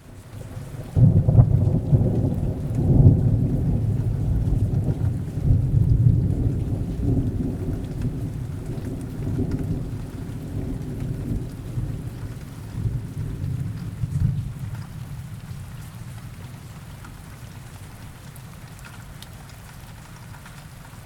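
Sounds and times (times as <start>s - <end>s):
rain: 0.0s - 21.0s
rolling thunder: 0.4s - 15.5s.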